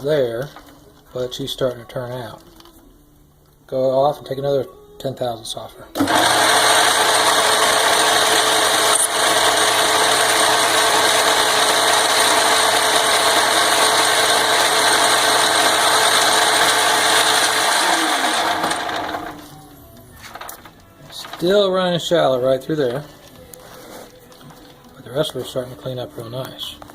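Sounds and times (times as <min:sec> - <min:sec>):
motor hum spinning down: 0:06.0 - 0:19.5
lathe running: 0:06.0 - 0:19.6.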